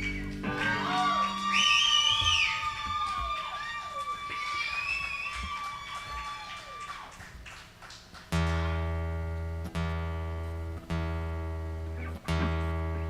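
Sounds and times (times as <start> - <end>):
guitar low string plucked: 0.0 - 1.7, 8.3 - 13.0.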